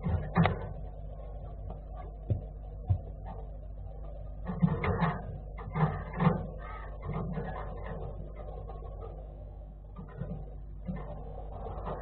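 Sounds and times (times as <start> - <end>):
steady low hum: 0.0 - 12.0
short animal calls: 5.9 - 7.7.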